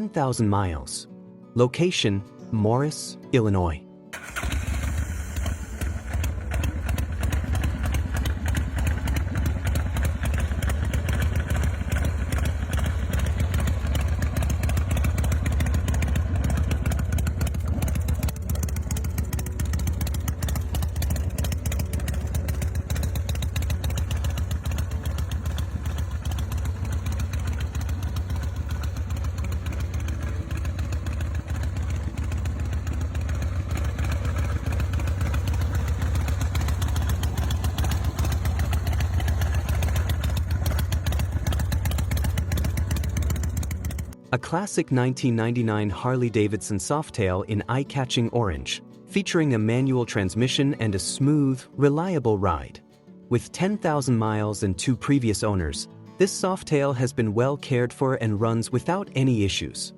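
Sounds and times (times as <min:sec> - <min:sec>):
motorcycle engine running: 0:04.2 - 0:44.2.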